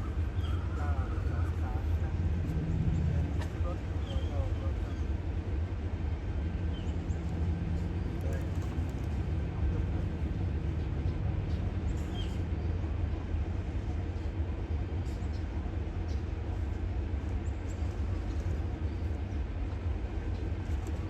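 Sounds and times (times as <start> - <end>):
diesel locomotive engine droning: 0.0 - 21.0
faint bird chirps: 0.3 - 1.3.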